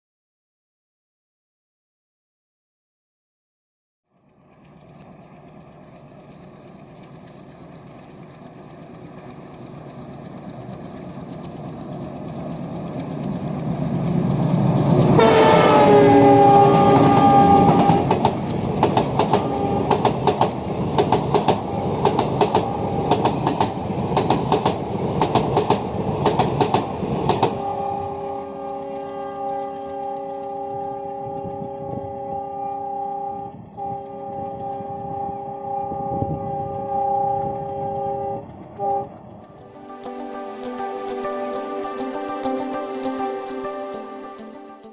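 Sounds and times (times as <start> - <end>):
wheels clickety-clack over rail joints: 4.1 - 44.7
diesel locomotive engine rumble: 4.2 - 44.9
train horn chord: 15.0 - 18.3, 19.2 - 20.1, 21.7 - 23.3, 27.5 - 44.9.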